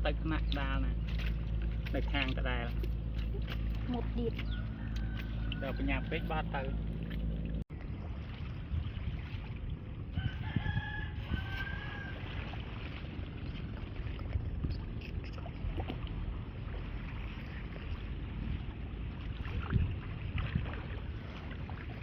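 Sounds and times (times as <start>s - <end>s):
rooster crowing: 4.5s - 6.5s, 10.2s - 12.2s.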